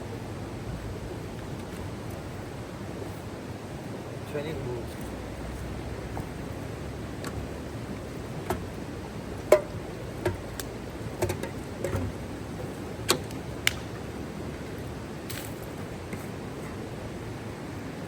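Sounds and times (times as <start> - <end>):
steady background hiss: 0.0 - 18.0
sharp clicks and knocks: 9.5 - 14.1.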